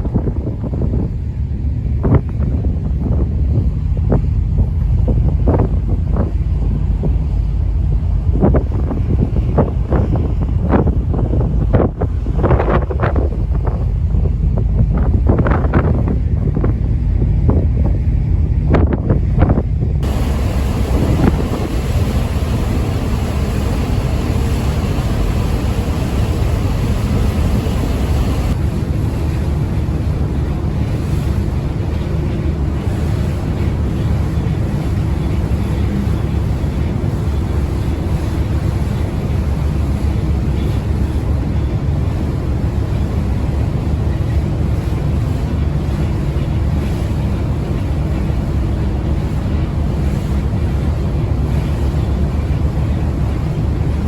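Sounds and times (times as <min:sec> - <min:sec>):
ferry engine rumble: 0:00.0 - 0:54.0
sea noise: 0:00.0 - 0:54.0
wind buffeting microphone: 0:00.0 - 0:54.0
water rushing: 0:20.0 - 0:54.0.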